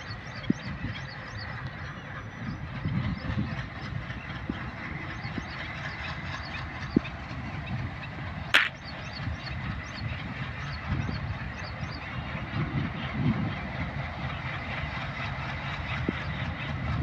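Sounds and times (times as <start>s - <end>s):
distant train rumbling: 0.0s - 17.0s
sharp click: 8.6s - 8.8s.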